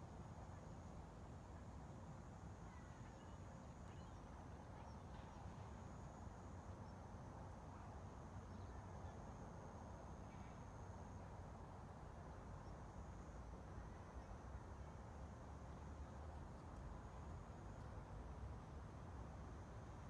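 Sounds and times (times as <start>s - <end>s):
faint bird chirps: 2.6s - 5.7s.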